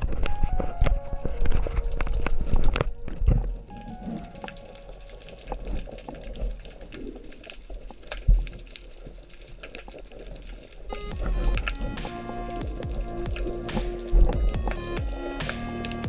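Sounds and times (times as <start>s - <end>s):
music: 0.0s - 5.8s, 10.9s - 16.0s
water hissing with clicks: 3.6s - 16.0s.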